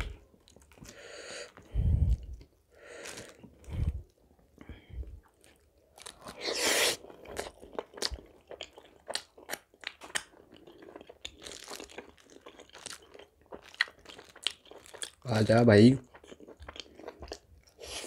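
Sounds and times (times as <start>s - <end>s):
chewing with mouth clicks: 7.0s - 15.2s, 16.0s - 18.0s.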